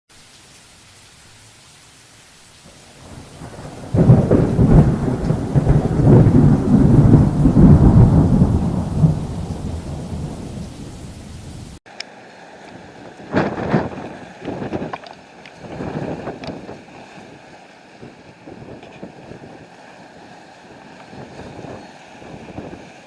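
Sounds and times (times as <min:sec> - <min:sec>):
steady rain: 0:00.1 - 0:23.0
thunder rumbling: 0:02.6 - 0:11.8.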